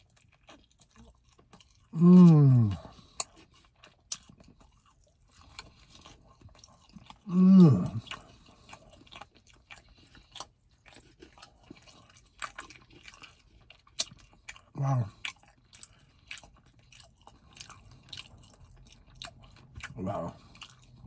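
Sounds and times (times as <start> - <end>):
man chewing meat: 0.0 - 21.0
man humming: 2.0 - 2.9, 7.3 - 8.0.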